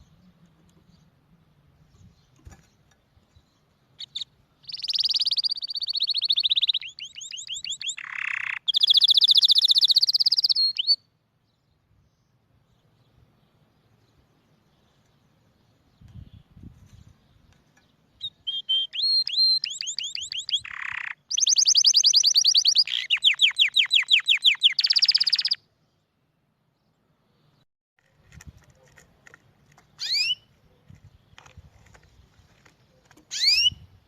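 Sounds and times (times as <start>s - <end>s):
canary singing: 4.0s - 11.1s, 17.4s - 25.7s, 29.9s - 30.9s, 32.9s - 33.9s.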